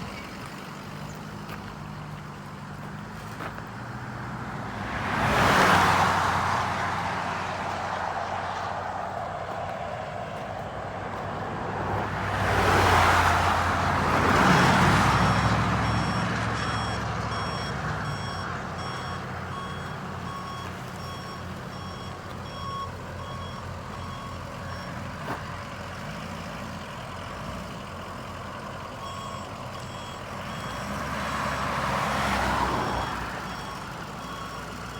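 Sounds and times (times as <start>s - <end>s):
diesel truck engine running: 0.0s - 34.9s
backup alarm beeping: 15.2s - 24.9s.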